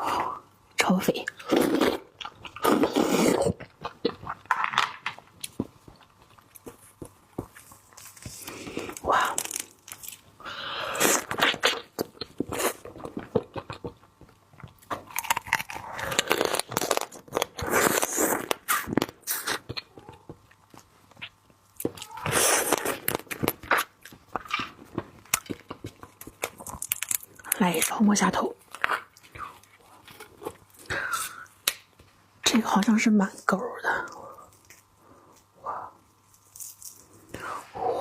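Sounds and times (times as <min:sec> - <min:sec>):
crab shell crunching while chewing: 0:01.3 - 0:10.3, 0:10.9 - 0:27.9, 0:34.4 - 0:37.4.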